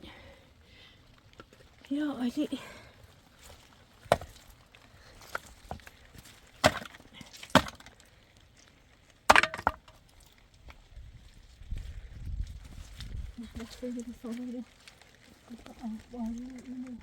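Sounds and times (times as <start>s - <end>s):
wood being chopped: 4.0s - 4.4s, 6.6s - 8.0s, 9.3s - 10.0s.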